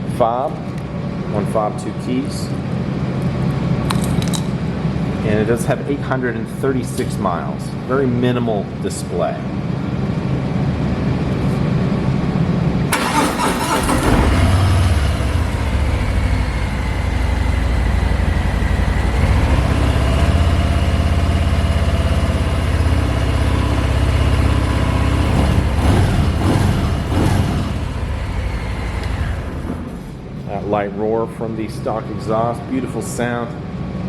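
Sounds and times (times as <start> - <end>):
motorcycle engine starting and idling: 12.9 - 30.5.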